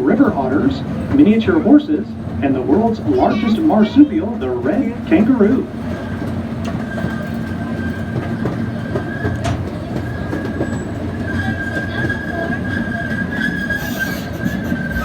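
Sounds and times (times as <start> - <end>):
train low rumble: 0.0 - 15.0
thin high squeal: 13.4 - 15.0.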